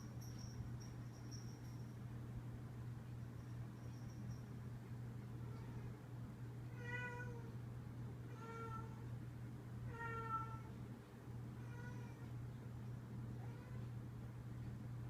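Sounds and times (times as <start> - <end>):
steady low hum: 0.0 - 15.0
cat meowing: 9.9 - 10.7.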